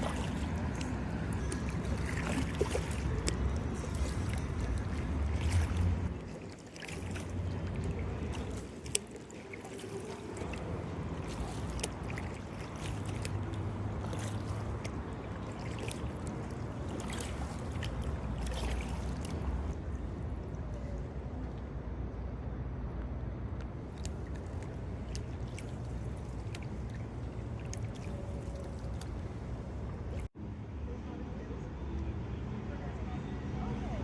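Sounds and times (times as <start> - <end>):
low steady rumble: 0.0 - 9.1
water dripping: 0.0 - 19.8, 23.9 - 30.3
paddle splashing in water: 0.0 - 21.6, 23.8 - 30.3.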